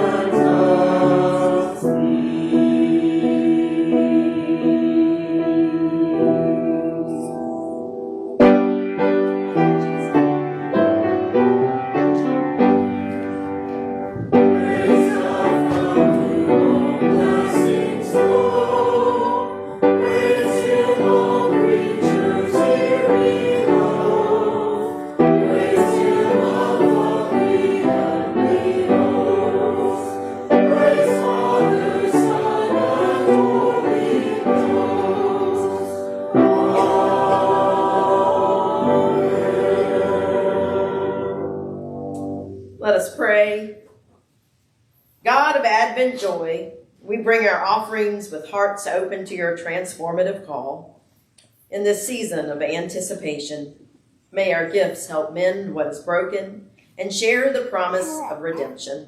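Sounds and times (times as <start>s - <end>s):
church choir singing: 0.0s - 42.8s
piano accompaniment: 0.0s - 42.9s.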